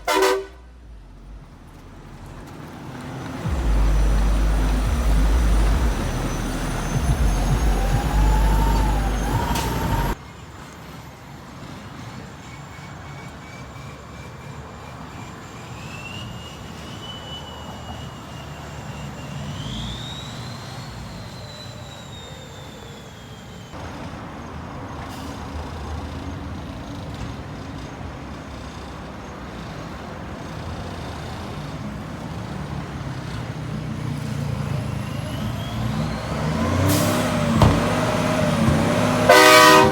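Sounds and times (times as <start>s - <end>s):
truck engines rumbling: 0.0s - 39.9s
siren-like gliding tones: 3.4s - 10.2s, 34.6s - 39.9s.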